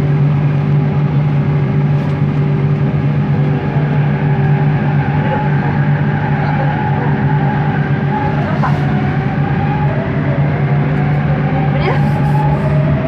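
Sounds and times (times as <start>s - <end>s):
metro train motor hum: 0.0s - 13.0s.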